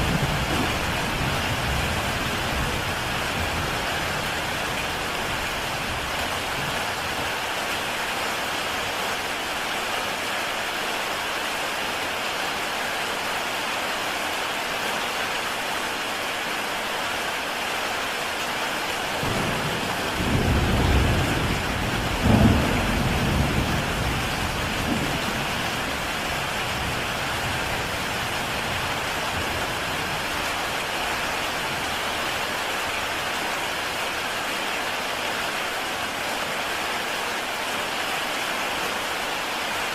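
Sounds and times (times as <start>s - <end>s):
thunder rumbling and cracking: 0.0s - 6.9s, 19.2s - 30.9s
heavy rain on a tile roof: 0.0s - 39.9s.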